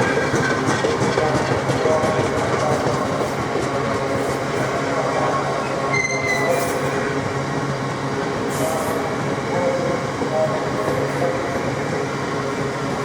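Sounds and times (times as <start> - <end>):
diesel locomotive drone: 0.0 - 13.0
train wheels rumbling on rails: 0.0 - 13.0
high wheel squeal: 5.9 - 6.8.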